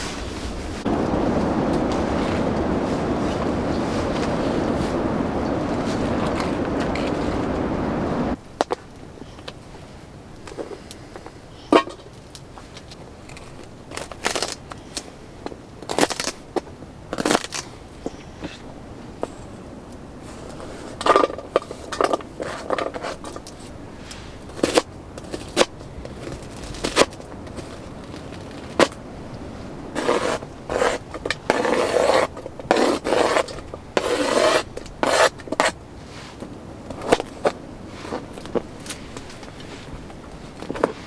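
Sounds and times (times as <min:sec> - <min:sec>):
scraping and rubbing: 0:00.0 - 0:08.4, 0:29.9 - 0:41.0.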